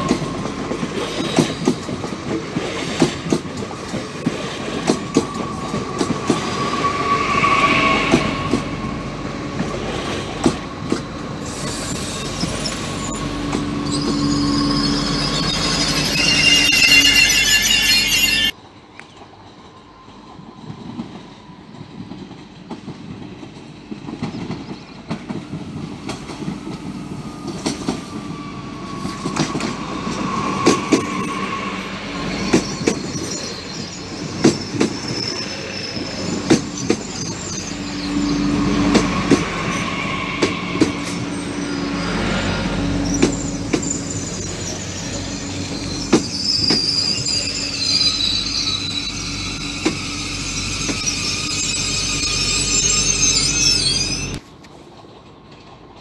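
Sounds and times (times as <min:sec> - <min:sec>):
train rumbling past: 0:00.0 - 0:56.0
wheel and brake squeal: 0:03.8 - 0:18.6, 0:27.0 - 0:54.6.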